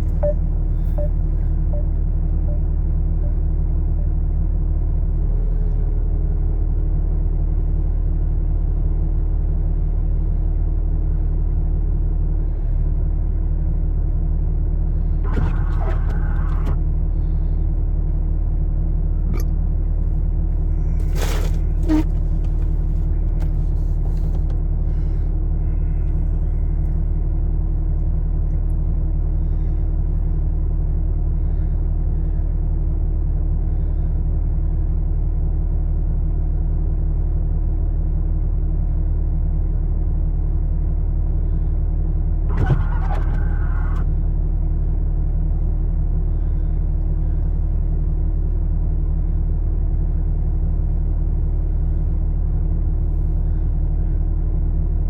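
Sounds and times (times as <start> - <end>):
short higher tone: 0.0 - 4.1
vehicle engine idling: 0.0 - 55.0.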